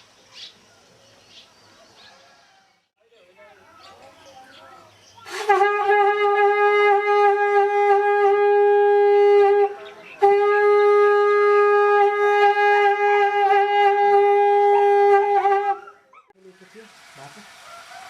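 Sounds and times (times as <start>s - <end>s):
long horn notes: 5.3s - 15.8s.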